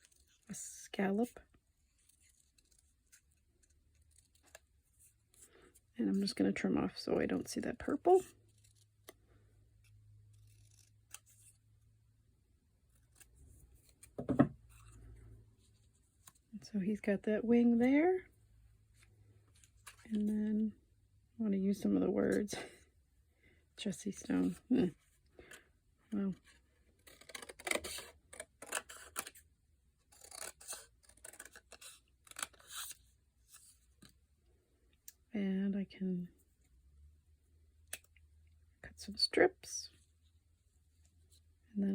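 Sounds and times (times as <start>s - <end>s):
scissors cutting paper: 27.0s - 29.4s, 30.1s - 33.0s.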